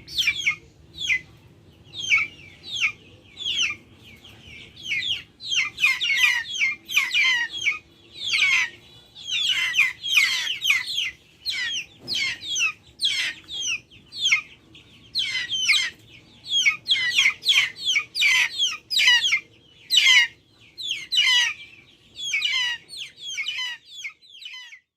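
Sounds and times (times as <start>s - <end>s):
chickens peeping: 0.0s - 24.9s.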